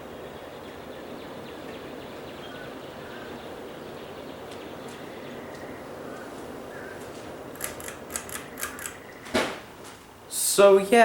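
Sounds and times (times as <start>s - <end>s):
ceiling fan running: 3.0s - 11.0s.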